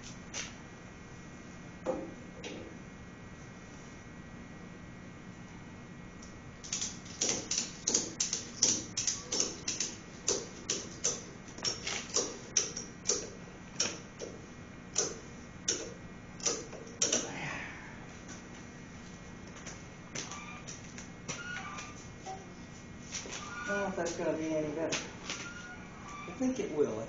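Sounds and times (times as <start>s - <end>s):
strap squeak: 20.2s - 20.7s, 21.4s - 22.0s, 23.3s - 23.9s, 25.2s - 26.5s.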